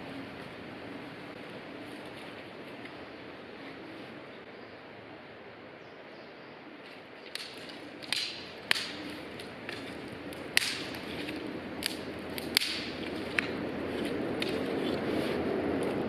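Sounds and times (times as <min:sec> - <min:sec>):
wood fire crackling: 0:06.8 - 0:16.0.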